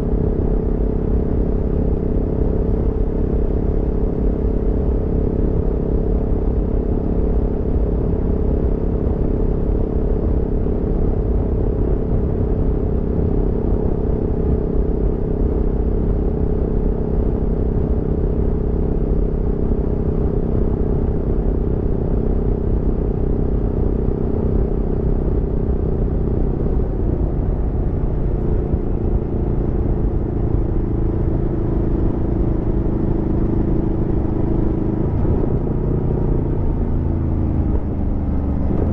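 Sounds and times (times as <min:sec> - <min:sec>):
wind and road noise: 0:00.0 - 0:38.9
motorcycle engine cruising: 0:22.4 - 0:38.9.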